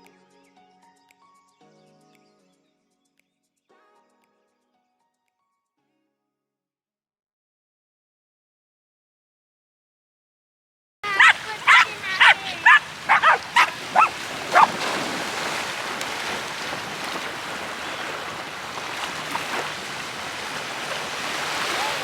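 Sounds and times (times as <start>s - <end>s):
dog yelping barks: 11.0s - 14.8s
sea surf: 11.0s - 22.0s.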